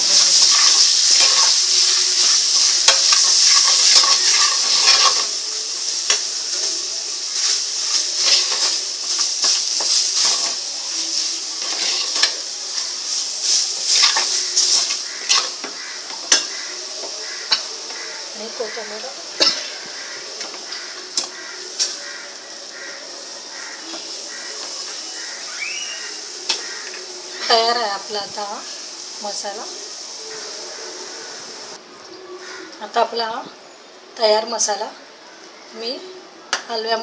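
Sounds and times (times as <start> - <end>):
spoon stirring and scraping pan: 0.0 - 22.9
paste sizzling in oil: 0.0 - 31.8.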